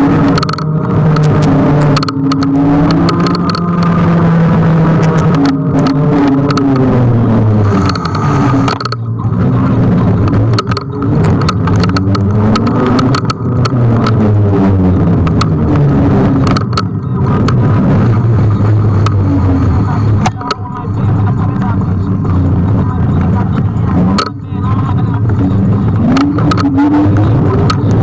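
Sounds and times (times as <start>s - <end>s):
road noise hum and rush: 0.0s - 28.0s.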